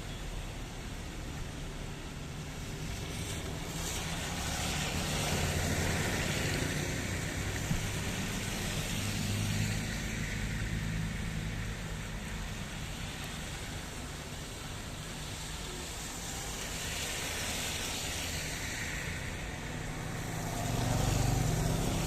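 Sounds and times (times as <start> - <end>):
rain falling: 0.2 - 22.0
vehicle passing: 19.9 - 22.0.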